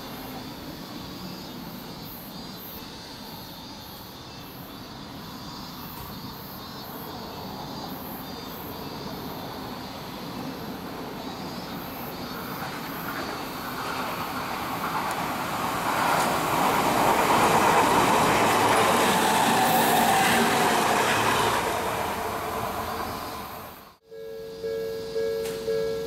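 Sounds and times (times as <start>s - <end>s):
train wheels rumbling on rails: 9.1s - 24.0s.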